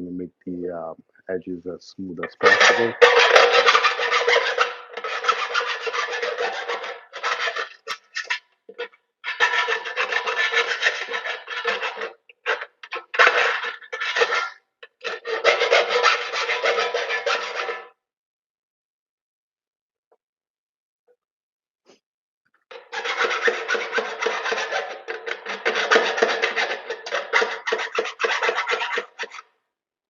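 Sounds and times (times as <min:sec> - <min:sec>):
file rasping on metal: 0:02.3 - 0:17.9, 0:22.7 - 0:29.4.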